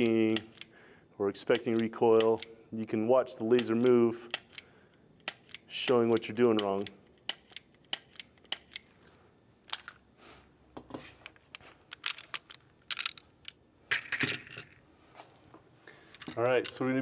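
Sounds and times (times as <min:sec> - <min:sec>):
pistol trigger clicks: 0:00.0 - 0:00.7, 0:03.6 - 0:08.9.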